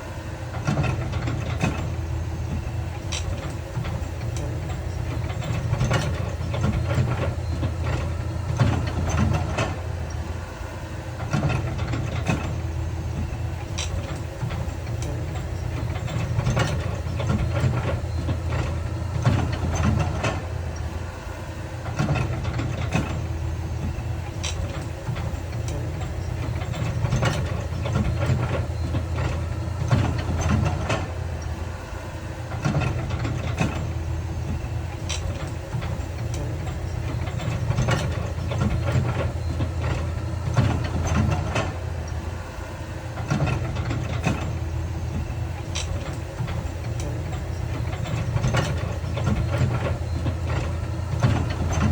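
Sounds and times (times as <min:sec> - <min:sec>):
diesel engine drone: 0:00.0 - 0:51.9
short clanks and knocks: 0:43.2 - 0:51.9.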